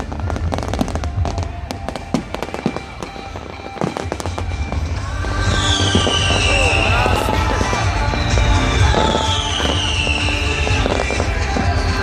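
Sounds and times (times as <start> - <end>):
fireworks bangs and crackles: 0.0 - 12.0
high falling whistle: 2.4 - 7.6, 8.2 - 11.3.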